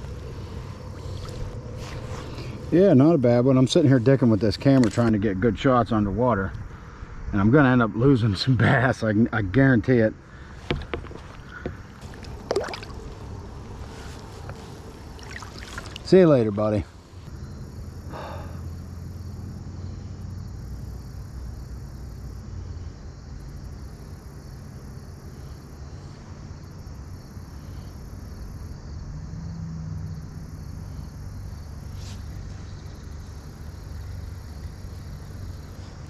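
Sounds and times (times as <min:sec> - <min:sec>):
insects trilling: 0:00.0 - 0:36.0
low steady hum: 0:10.2 - 0:21.2.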